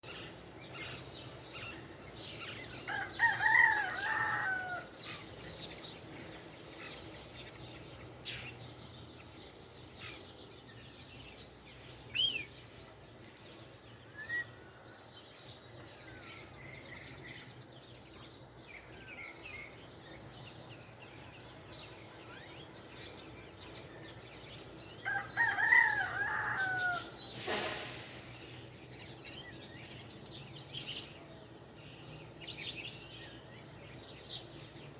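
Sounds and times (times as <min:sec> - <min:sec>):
small birds chirping: 0:00.0 - 0:34.9
rooster crowing: 0:02.9 - 0:04.9, 0:25.0 - 0:27.2.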